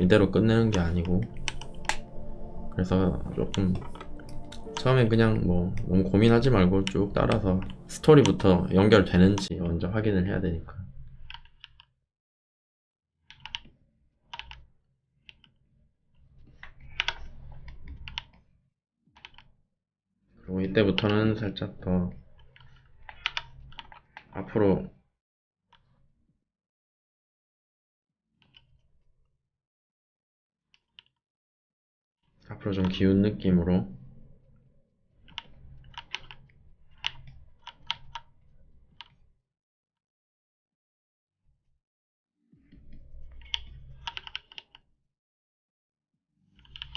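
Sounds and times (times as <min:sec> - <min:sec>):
computer keyboard keystrokes: 0:00.7 - 0:05.4, 0:43.4 - 0:44.8.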